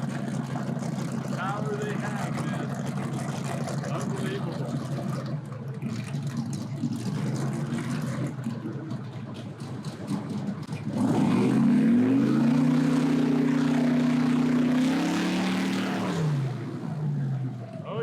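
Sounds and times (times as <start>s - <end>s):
airboat engine and propeller drone: 0.0s - 18.0s.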